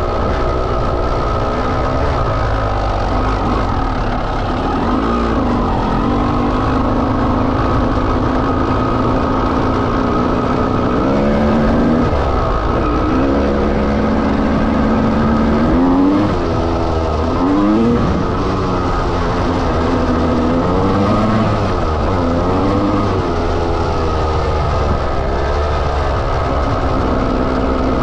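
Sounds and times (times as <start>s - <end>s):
two-stroke motorcycle engine revving: 0.0s - 28.0s.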